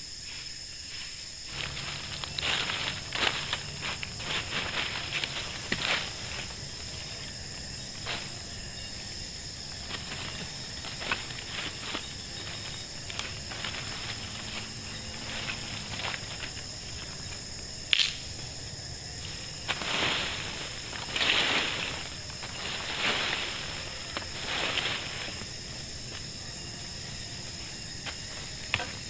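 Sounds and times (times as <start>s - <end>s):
insects droning: 0.0s - 29.0s
rustling: 1.0s - 17.8s, 19.1s - 29.0s
sharp snap: 17.9s - 18.2s.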